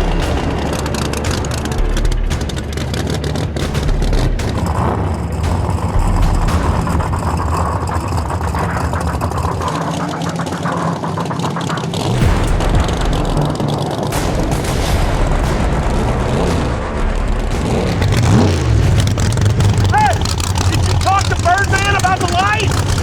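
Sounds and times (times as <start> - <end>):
car engine idling with crackles: 0.0 - 23.0.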